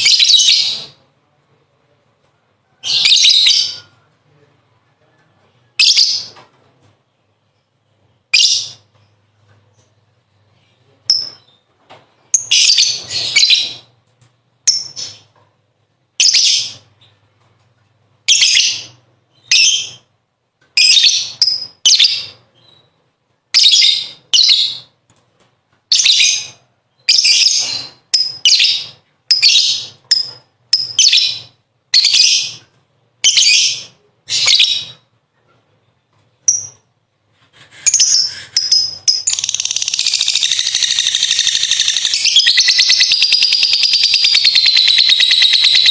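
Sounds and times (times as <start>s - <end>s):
lovebird chattering: 37.9s - 45.9s
lovebird long trill: 38.8s - 45.9s.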